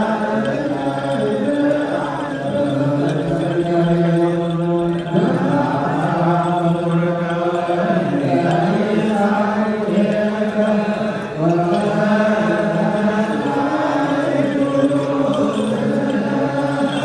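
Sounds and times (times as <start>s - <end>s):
voices chanting a slow hymn: 0.0s - 17.0s.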